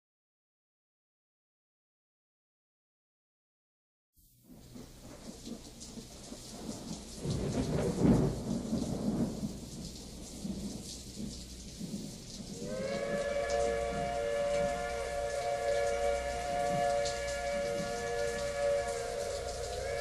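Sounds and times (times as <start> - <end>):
steady rain: 4.2 - 20.0
rolling thunder rumble: 4.5 - 20.0.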